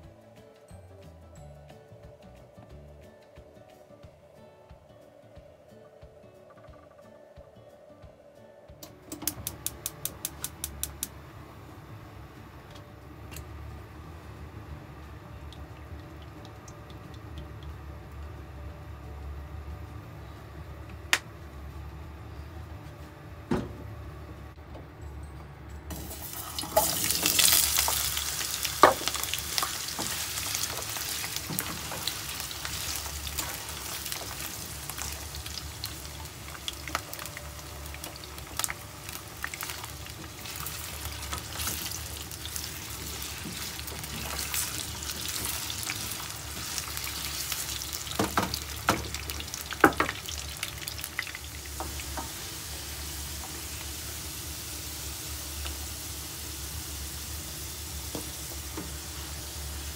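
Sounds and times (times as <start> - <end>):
potatoes sizzling in oil: 25.9 - 59.9.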